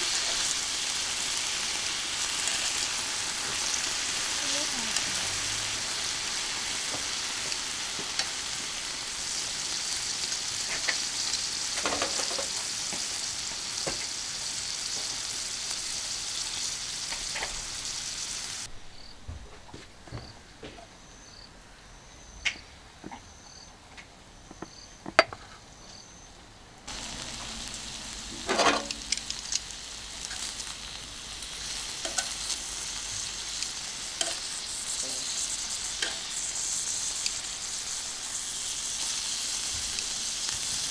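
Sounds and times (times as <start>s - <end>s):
meat sizzling on a griddle: 0.0s - 18.7s, 26.9s - 40.9s.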